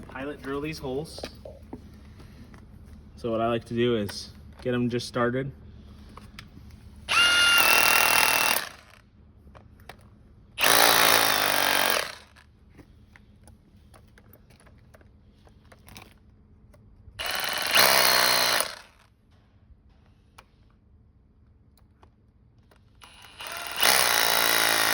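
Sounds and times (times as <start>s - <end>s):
power drill whining and grinding: 7.1s - 9.0s, 10.6s - 12.9s, 17.2s - 19.1s, 22.8s - 24.9s.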